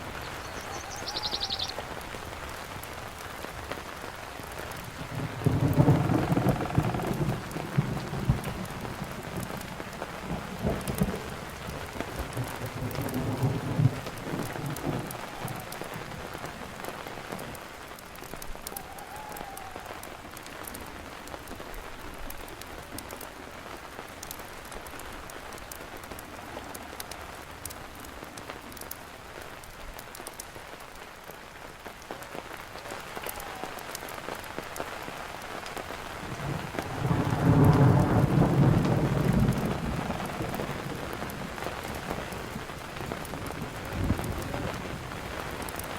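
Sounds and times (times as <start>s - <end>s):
campfire crackling: 0.0s - 45.9s
steady rain: 0.0s - 45.9s
thunder rumbling: 4.4s - 17.6s, 35.8s - 45.9s.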